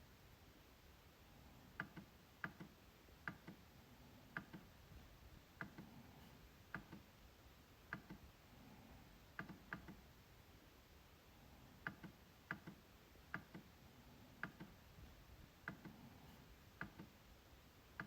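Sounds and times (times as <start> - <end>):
trackpad clicking: 9.4 - 10.0, 11.8 - 13.7, 14.4 - 14.8.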